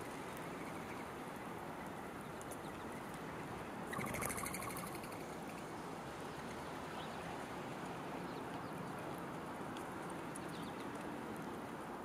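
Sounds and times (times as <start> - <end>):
steady outdoor hiss: 0.0 - 12.0
faint bird chirps: 3.9 - 5.2.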